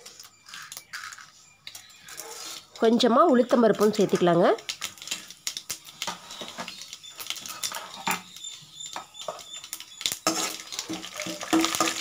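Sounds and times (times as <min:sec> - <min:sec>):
seeds popping in hot oil: 0:00.0 - 0:12.0
ladle stirring: 0:09.2 - 0:12.0
metal ladle knocking pan: 0:10.2 - 0:12.0.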